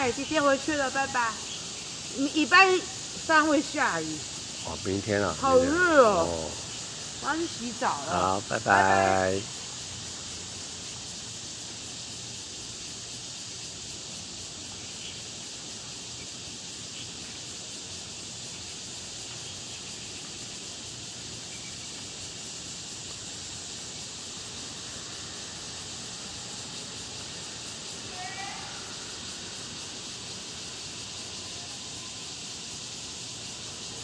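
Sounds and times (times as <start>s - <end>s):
outdoor background hiss: 0.0s - 34.0s.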